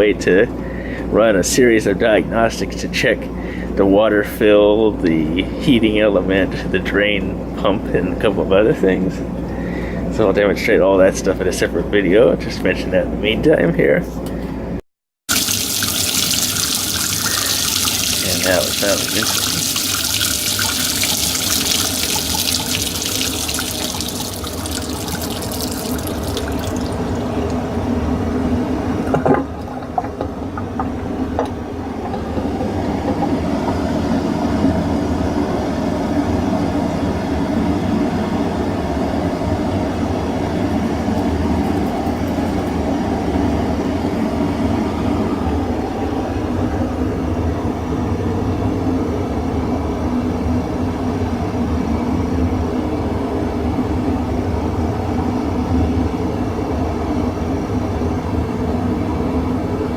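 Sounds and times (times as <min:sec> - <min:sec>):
hiss of spraying water: 0:15.3 - 0:27.0
pump humming: 0:15.3 - 0:28.0.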